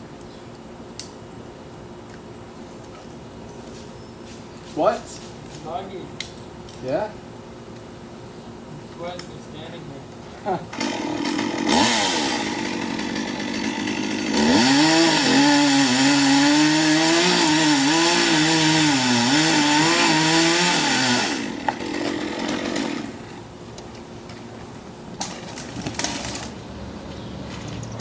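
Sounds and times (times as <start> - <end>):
gas chainsaw running: 10.7 - 23.5, 25.8 - 26.5.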